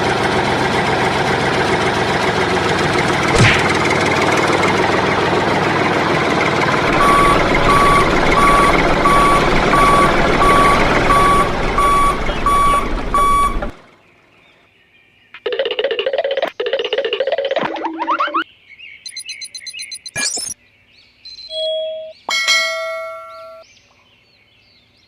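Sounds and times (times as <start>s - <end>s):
tractor engine running: 0.0s - 14.3s
reversing beeper: 6.8s - 13.8s.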